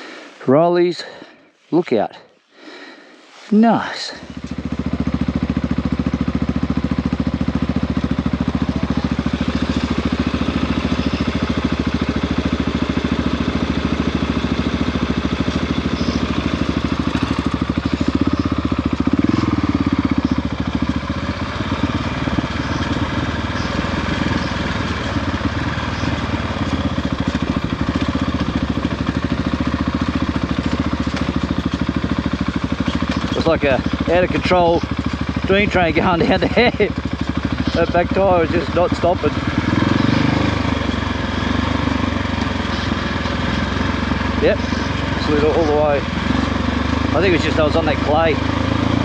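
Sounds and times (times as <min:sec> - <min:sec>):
motorcycle engine running: 0:03.3 - 0:49.0.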